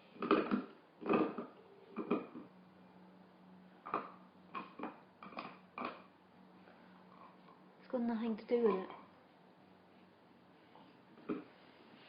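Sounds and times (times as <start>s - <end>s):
faint steady hum: 0.0s - 12.0s
dog gnawing a bone: 0.1s - 2.5s, 3.8s - 6.1s, 11.2s - 11.5s.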